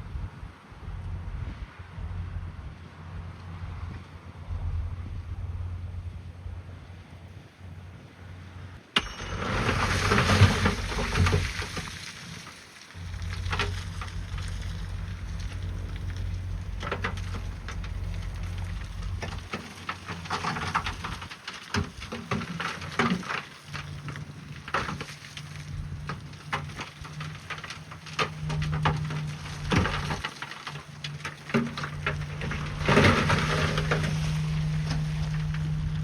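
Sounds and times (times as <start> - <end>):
bulldozer diesel engine running: 0.0 - 6.9, 8.5 - 12.4, 13.0 - 36.0
rock crunching and clattering: 9.0 - 36.0.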